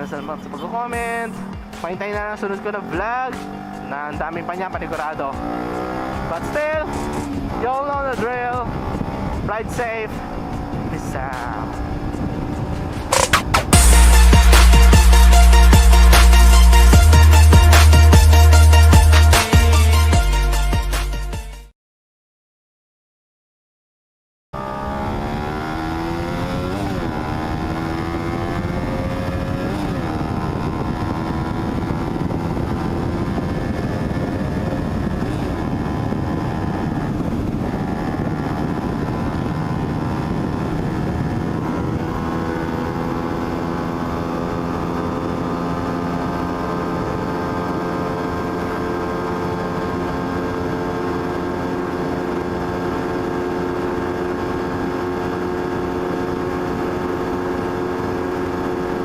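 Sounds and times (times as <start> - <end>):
motorcycle engine running: 0.0 - 20.2, 24.6 - 59.0
wind noise: 6.8 - 14.0, 25.0 - 59.0.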